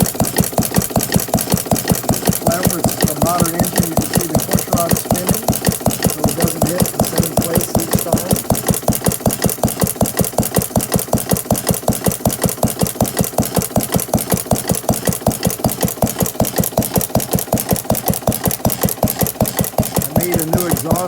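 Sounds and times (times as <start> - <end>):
engine running steadily: 0.0 - 21.0.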